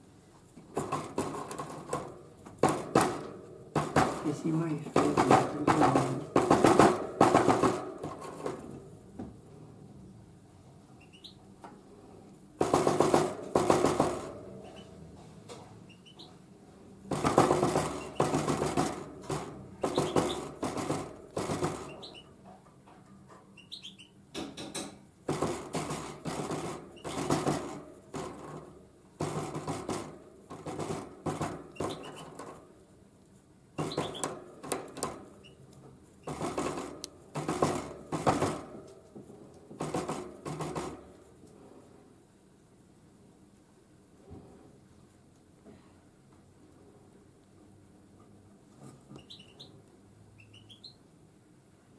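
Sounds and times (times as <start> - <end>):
bird beak tapping seeds: 17.1 - 22.3, 33.8 - 39.0.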